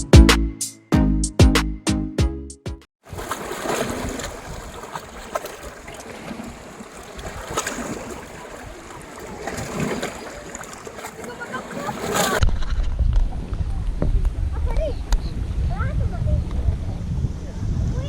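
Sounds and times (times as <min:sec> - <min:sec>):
music track: 0:00.0 - 0:02.9
lake water lapping: 0:03.0 - 0:12.4.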